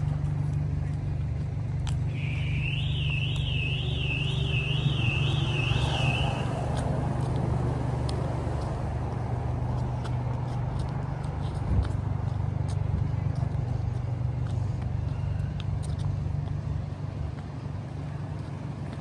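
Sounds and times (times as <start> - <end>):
city traffic rumble: 0.0 - 19.0
warbling electronic alarm: 2.2 - 6.8.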